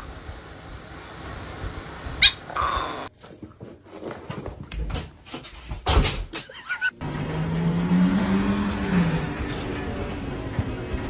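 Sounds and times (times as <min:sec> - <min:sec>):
knocks and clatter: 0:09.2 - 0:11.0.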